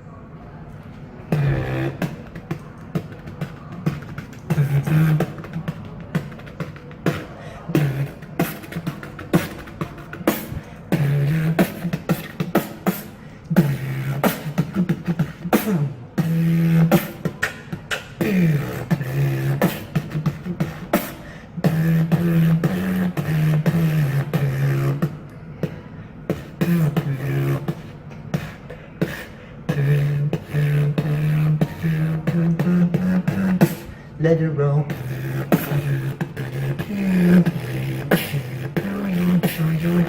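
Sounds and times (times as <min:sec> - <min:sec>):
beatboxing percussion hits: 0:01.2 - 0:34.1, 0:34.8 - 0:40.0
hummed bass tones: 0:01.3 - 0:02.3.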